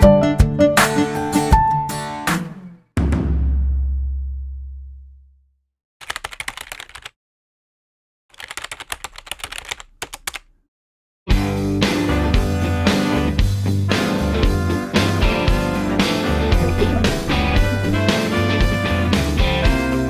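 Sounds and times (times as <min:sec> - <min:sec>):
music: 0:00.0 - 0:04.3, 0:11.3 - 0:20.0
rapid clicking: 0:06.0 - 0:07.1, 0:08.4 - 0:10.6
deep boom: 0:16.5 - 0:18.8.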